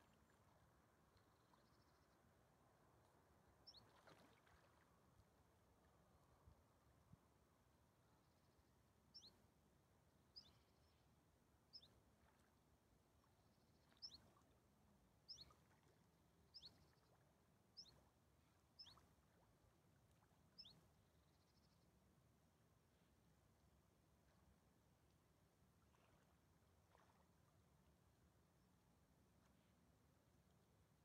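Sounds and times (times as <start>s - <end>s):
small bird calling faintly: 3.6s - 4.8s, 9.1s - 9.4s, 10.3s - 11.0s, 11.7s - 12.5s, 13.6s - 14.5s, 15.2s - 15.9s, 16.5s - 17.2s, 17.8s - 18.0s, 18.8s - 19.3s, 20.5s - 21.8s.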